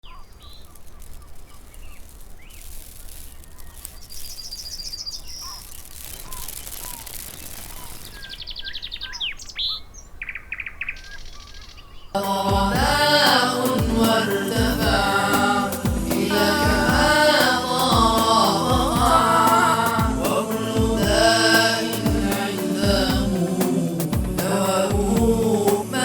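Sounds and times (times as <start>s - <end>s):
low steady hum: 12.2s - 26.0s.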